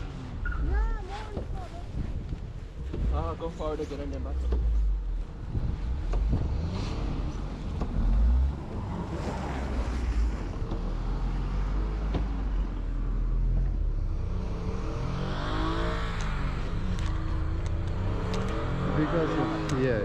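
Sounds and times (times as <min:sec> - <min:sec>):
vehicle engine revving: 0:04.3 - 0:20.0.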